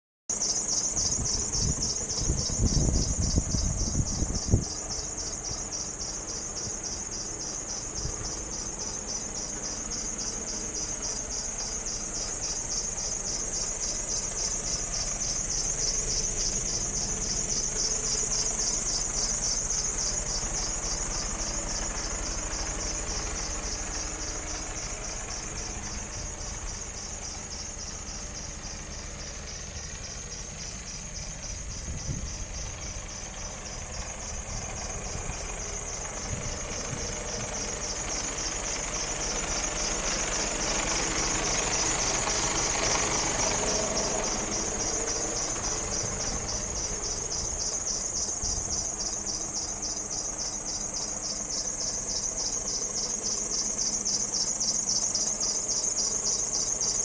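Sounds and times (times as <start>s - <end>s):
diesel engine cranking and idling: 0.3s - 57.0s.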